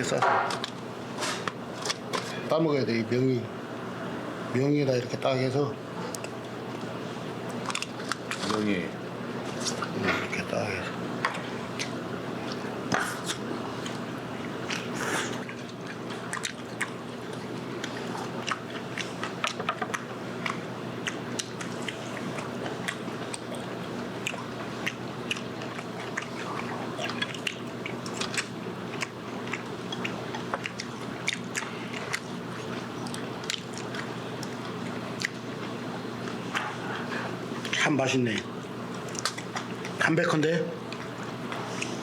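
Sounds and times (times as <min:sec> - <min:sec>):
steady low hum: 0:00.0 - 0:42.0
close-up chewing and biting: 0:11.7 - 0:37.8, 0:38.9 - 0:40.0.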